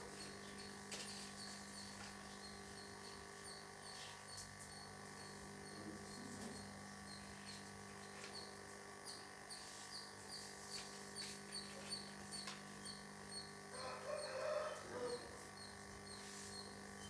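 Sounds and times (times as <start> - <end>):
animal call: 13.8 - 15.4.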